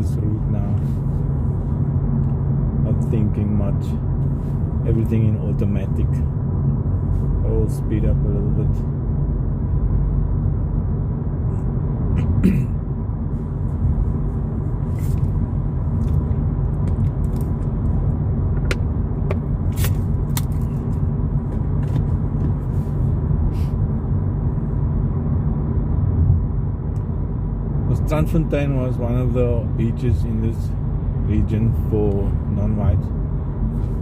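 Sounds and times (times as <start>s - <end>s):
car road and engine rumble: 0.0s - 34.0s.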